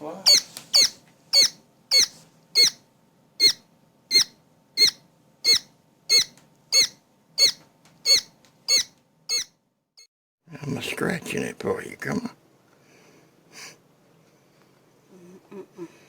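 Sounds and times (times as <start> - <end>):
quail chick peeping: 0.2 - 2.8, 3.4 - 9.5.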